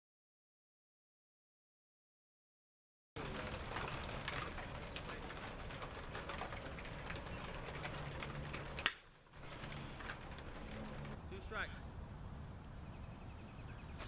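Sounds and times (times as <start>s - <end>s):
sharp crack: 3.2s - 11.2s
birds calling: 6.6s - 14.0s.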